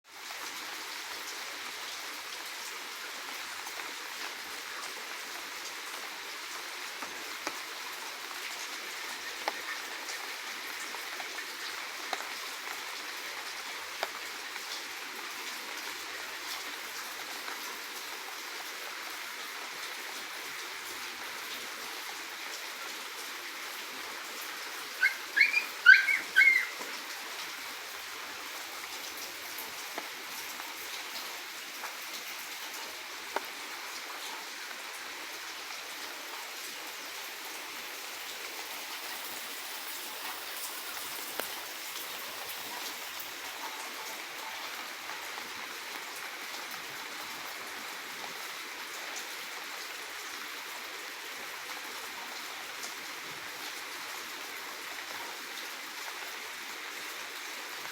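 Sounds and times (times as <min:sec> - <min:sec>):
faint ticks: 0:09.4 - 0:09.7, 0:40.2 - 0:41.6
finch chirping: 0:25.0 - 0:26.7
steady hiss: 0:37.2 - 0:44.6.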